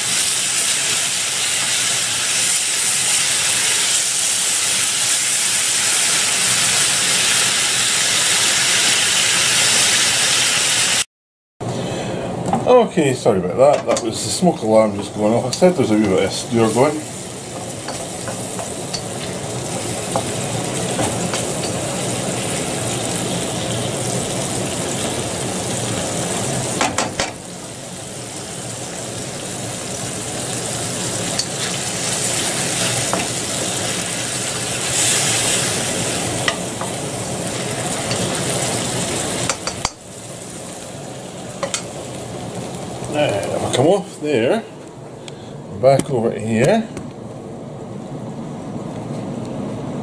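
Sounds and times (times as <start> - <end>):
steak sizzling in a wok: 0.0 - 11.0, 15.2 - 43.7.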